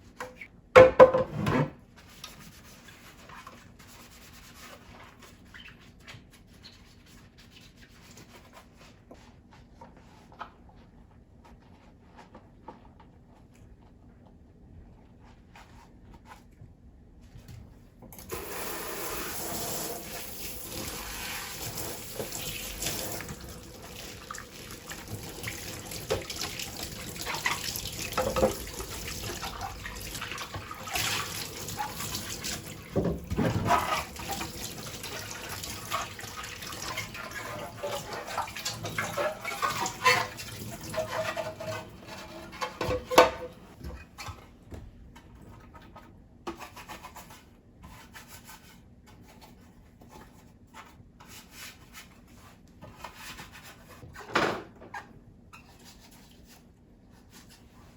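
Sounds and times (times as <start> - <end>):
tap water running into sink: 18.2 - 41.4.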